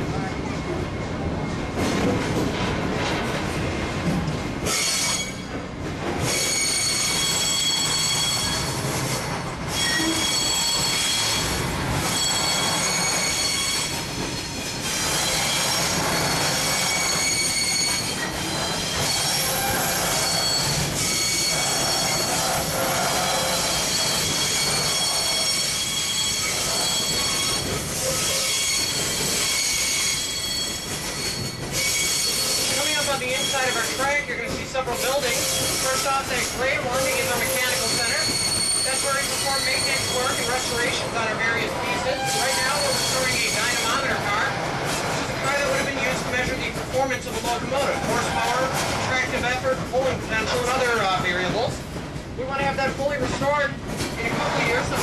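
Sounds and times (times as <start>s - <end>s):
train cars rumbling: 0.0s - 55.0s
train wheel squeal: 4.6s - 5.6s, 6.2s - 46.6s.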